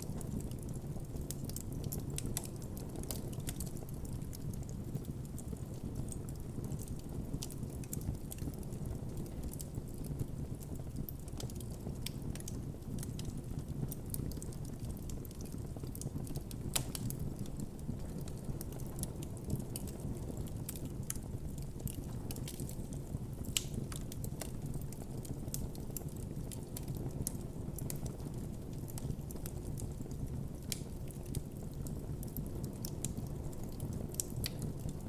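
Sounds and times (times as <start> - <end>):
campfire crackles: 0.0 - 35.0
low rumble of flames: 0.0 - 35.0
loud fire pops: 11.1 - 35.0.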